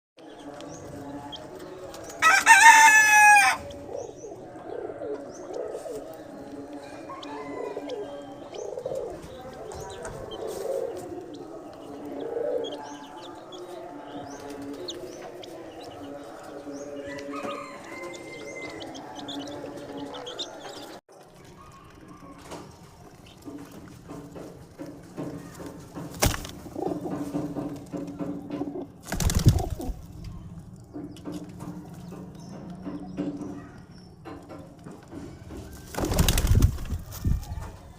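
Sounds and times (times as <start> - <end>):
chicks cheeping: 0.2 - 37.9
pigeons cooing: 0.3 - 21.0, 21.6 - 37.9
rooster crow: 2.2 - 3.7, 6.7 - 8.3, 16.9 - 19.4.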